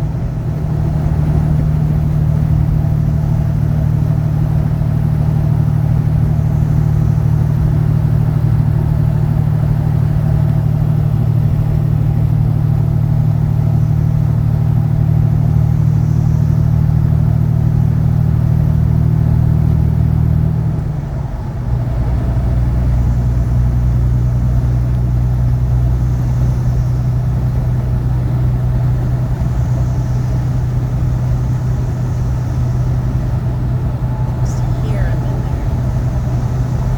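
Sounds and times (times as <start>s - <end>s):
truck engine droning: 29.2s - 36.9s
road noise: 29.4s - 36.9s.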